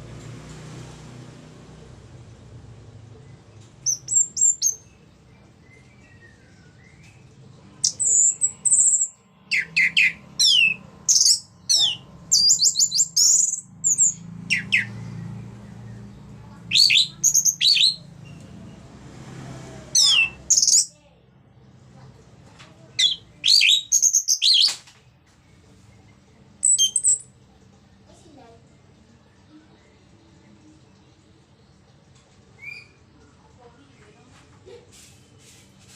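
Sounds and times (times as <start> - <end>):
thrush singing whistled notes: 3.8 - 5.0, 7.8 - 15.4, 16.7 - 18.4, 20.0 - 20.9, 23.0 - 24.8, 26.6 - 27.3
faint low hum: 25.0 - 34.8.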